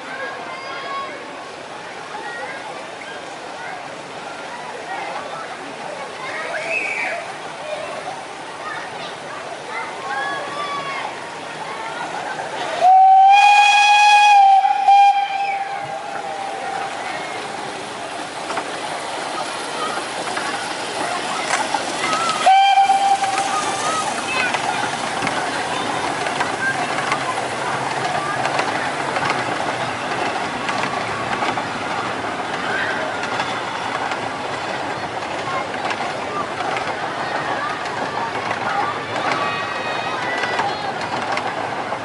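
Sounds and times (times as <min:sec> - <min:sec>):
train running rumble: 0:10.8 - 0:42.0
train whistle blowing: 0:12.8 - 0:17.0, 0:22.4 - 0:23.6.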